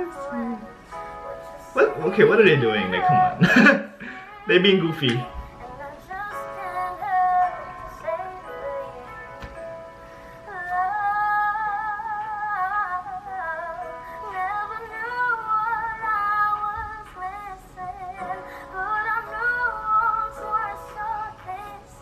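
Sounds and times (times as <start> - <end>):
girl singing with vibrato: 0.0 - 0.8, 5.2 - 9.7, 10.4 - 22.0
faint backing music: 0.0 - 22.0.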